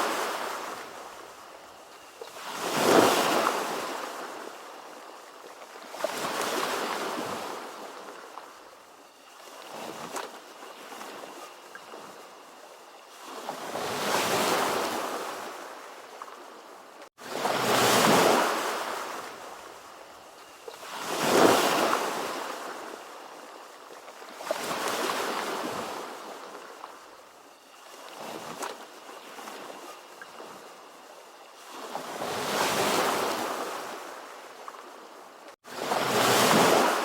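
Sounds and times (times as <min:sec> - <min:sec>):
ocean waves breaking: 0:17.2 - 0:19.6, 0:35.7 - 0:37.0.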